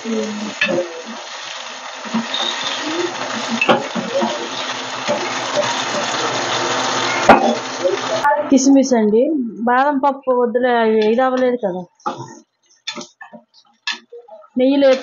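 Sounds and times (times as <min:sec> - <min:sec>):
nuts sizzling in a saucepan: 0:00.0 - 0:08.3.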